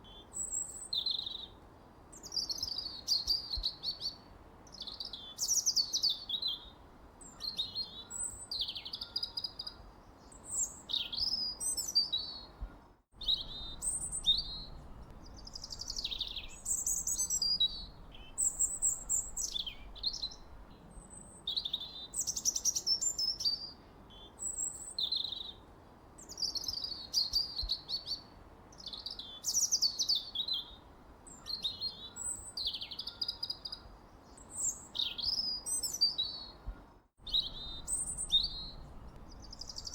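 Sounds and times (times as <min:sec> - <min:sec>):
faint hiss: 0:12.6 - 0:21.4, 0:37.3 - 0:39.9
songbird whistling: 0:13.2 - 0:20.7, 0:37.2 - 0:39.9.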